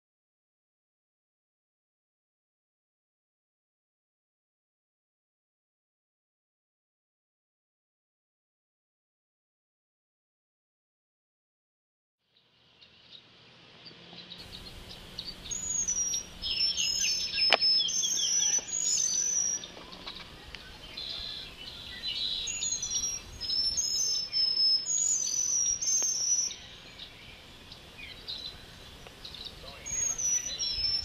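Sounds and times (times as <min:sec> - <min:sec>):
small birds chirping: 0:12.3 - 0:31.0
sharp click: 0:17.4 - 0:17.7.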